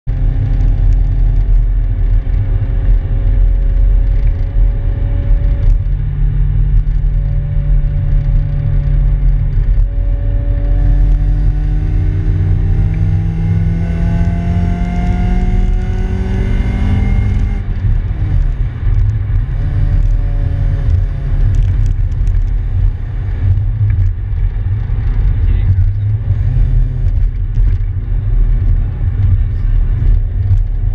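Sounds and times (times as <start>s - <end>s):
car engine droning and revving: 0.0s - 30.9s
road rumble: 0.0s - 30.9s.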